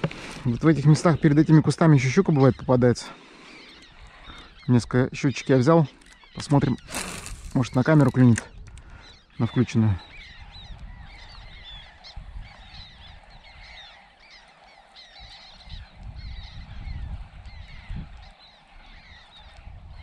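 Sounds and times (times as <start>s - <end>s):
many birds chirping: 0.0s - 20.0s
wind rumble on microphone: 6.6s - 9.1s, 10.0s - 13.9s, 15.2s - 20.0s.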